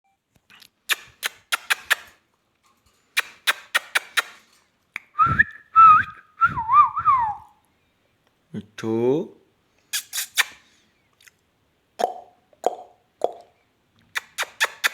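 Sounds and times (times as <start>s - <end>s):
parrot clicking: 3.2s - 4.4s.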